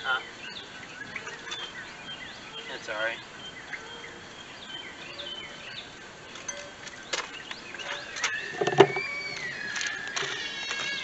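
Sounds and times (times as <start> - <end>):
birds chirping: 0.0 - 11.0
long bending bird call: 7.7 - 11.0.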